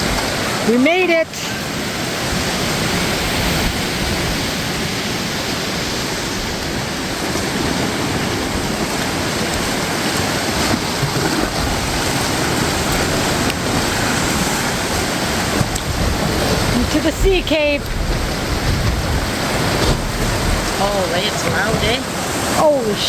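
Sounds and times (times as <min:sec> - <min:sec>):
ocean surf breaking on shore: 0:00.0 - 0:23.0.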